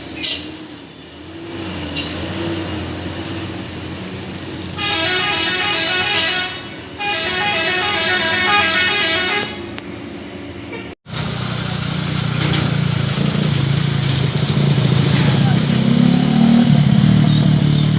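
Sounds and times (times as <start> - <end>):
engine droning: 0.6 - 17.9
vehicle horn playing a tune: 4.8 - 9.7.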